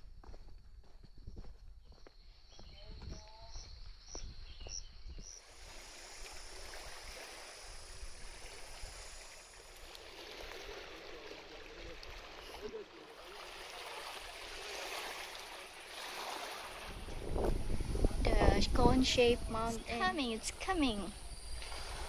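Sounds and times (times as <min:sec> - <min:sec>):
running water rushing: 0:05.4 - 0:22.0.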